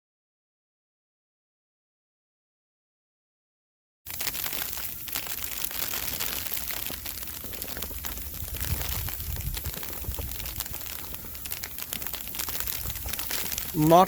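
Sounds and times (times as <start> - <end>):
snowstorm wind gusting on microphone: 6.1 - 14.0.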